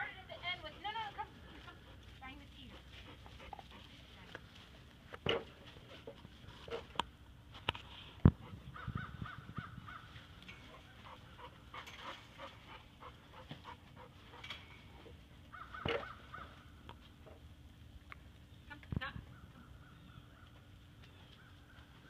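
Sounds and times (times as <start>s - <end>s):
faint clicks and rustles: 0.2s - 8.6s
birds cawing: 15.5s - 16.7s.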